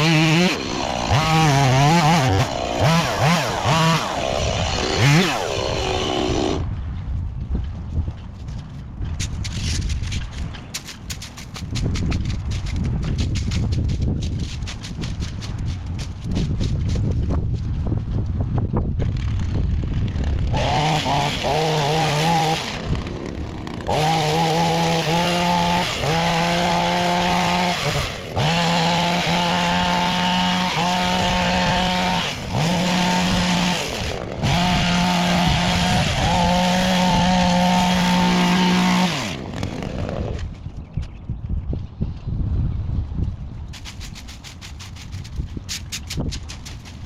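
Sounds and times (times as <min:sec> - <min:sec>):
two-stroke garden tool engine revving: 0:00.0 - 0:06.7, 0:20.2 - 0:40.5.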